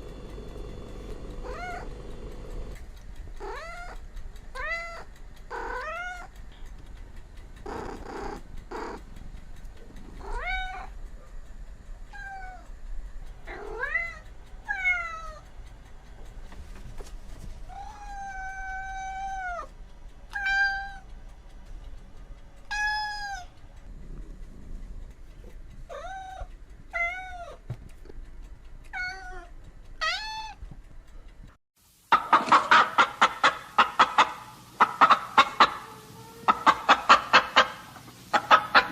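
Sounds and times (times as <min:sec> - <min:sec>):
cat meowing: 0:01.4 - 0:02.0, 0:03.4 - 0:06.3, 0:10.2 - 0:10.9, 0:12.1 - 0:12.7, 0:17.7 - 0:19.7, 0:20.3 - 0:21.1, 0:22.7 - 0:23.5, 0:25.9 - 0:27.6, 0:28.9 - 0:30.6
chickens clucking: 0:32.1 - 0:38.9.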